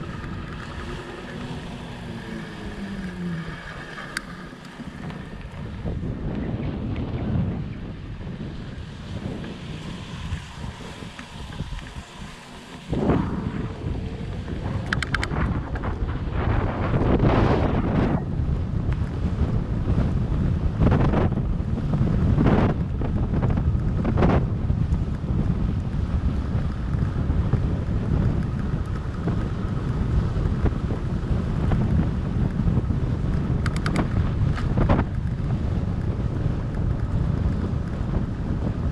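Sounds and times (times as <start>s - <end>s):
wind buffeting microphone: 0.0s - 38.9s
quick clicks: 14.8s - 15.9s.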